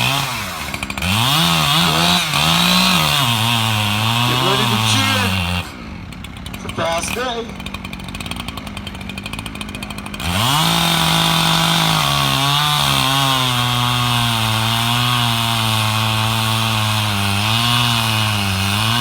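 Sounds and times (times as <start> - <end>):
chainsaw revving and cutting log: 0.0 - 19.0.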